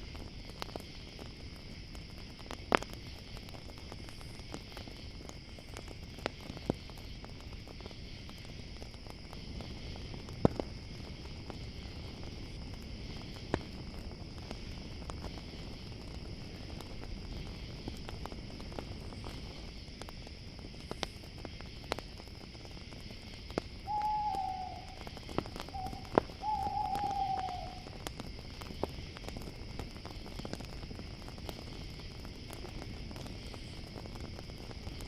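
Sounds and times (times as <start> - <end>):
campfire crackling and popping: 0.0 - 35.0
crickets chirping: 0.0 - 35.0
owl hooting: 23.8 - 25.1, 25.7 - 27.9.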